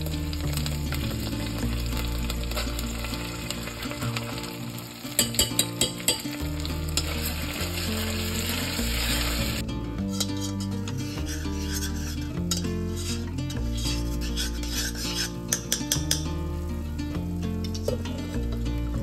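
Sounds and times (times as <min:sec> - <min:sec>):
paste sizzling in oil: 0:00.0 - 0:09.6
spoon clicking against pan: 0:05.2 - 0:06.4, 0:15.5 - 0:16.4.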